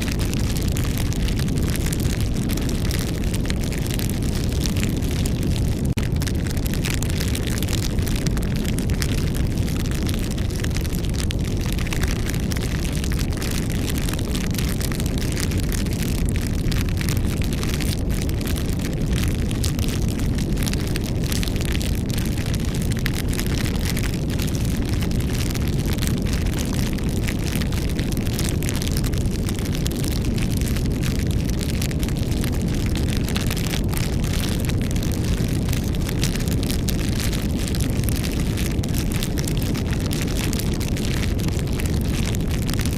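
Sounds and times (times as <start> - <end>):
campfire flame rushing: 0.0 - 42.9
fire crackling and popping: 0.0 - 42.9.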